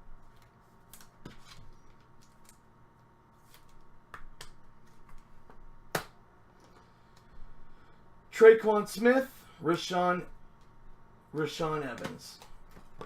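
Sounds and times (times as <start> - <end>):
trading cards flipped by hand: 3.4 - 6.8.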